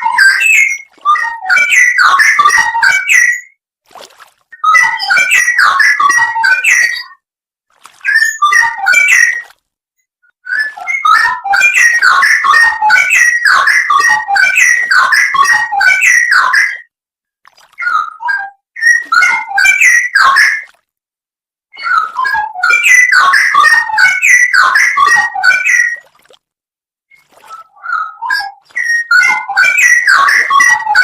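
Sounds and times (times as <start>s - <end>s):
bulbul singing whistled phrases: 0.0s - 3.5s, 8.0s - 9.4s, 10.5s - 16.8s, 17.8s - 20.7s, 27.1s - 31.0s.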